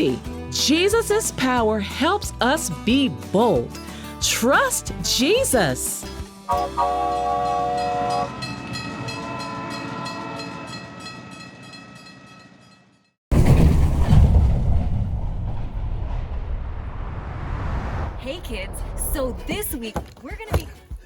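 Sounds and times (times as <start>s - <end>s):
train horn: 6.5s - 10.8s
loud low rumble: 13.3s - 19.6s.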